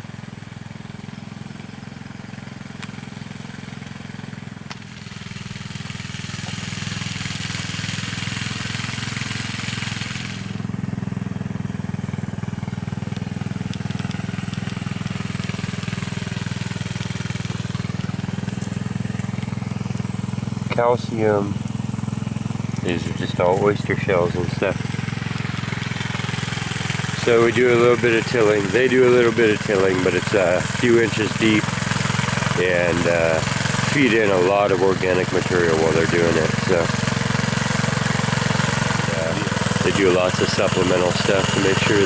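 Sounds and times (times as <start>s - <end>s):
engine running steadily: 0.0s - 42.0s
hiss: 3.0s - 10.8s.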